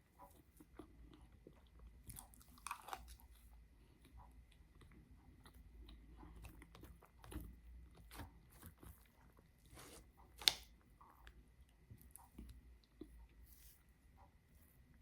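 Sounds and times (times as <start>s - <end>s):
person chewing: 0.0s - 10.5s.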